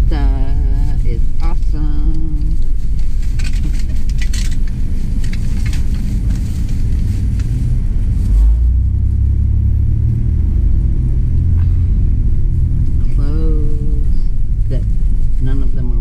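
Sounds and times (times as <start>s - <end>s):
engine rumbling: 0.0s - 16.0s
small clicks and rattles: 1.5s - 7.6s.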